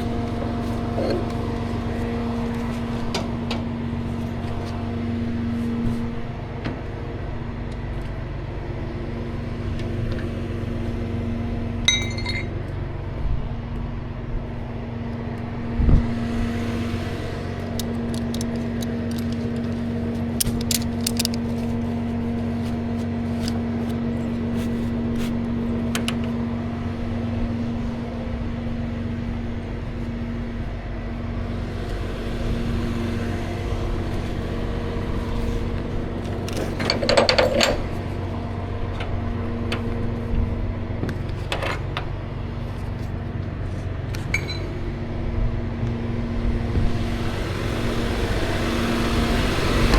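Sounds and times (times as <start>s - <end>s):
truck engine and road drone: 0.0s - 49.9s
light clinking rattles: 11.9s - 12.6s.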